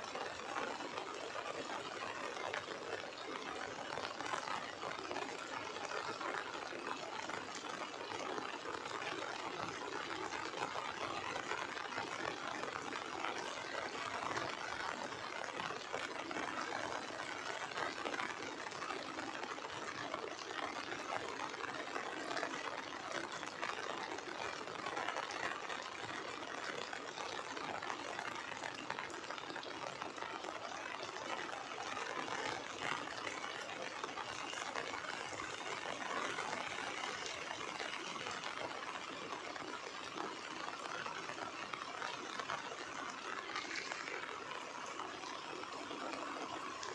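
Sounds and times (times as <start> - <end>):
heavy rain: 0.1 - 46.9.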